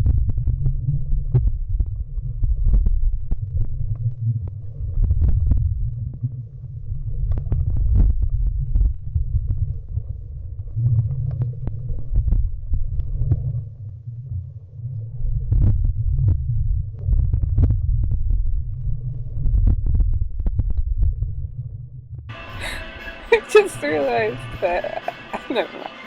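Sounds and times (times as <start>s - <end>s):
muffled underwater water rumble: 0.0s - 22.8s.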